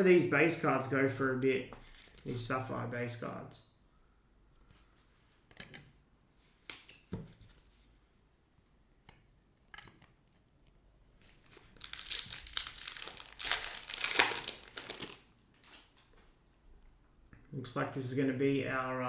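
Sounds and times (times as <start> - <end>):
wrapper tearing and crinkling: 11.2 - 16.2.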